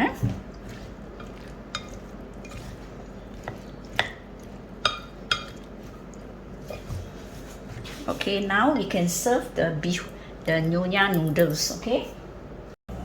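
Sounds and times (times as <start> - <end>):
low steady hum: 0.0 - 13.0
spoon clinking against a bowl: 4.8 - 5.7.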